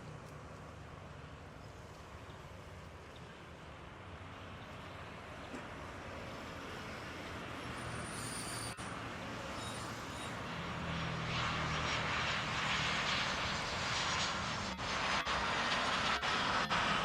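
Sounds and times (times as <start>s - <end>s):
jet engines roaring: 5.6s - 17.0s.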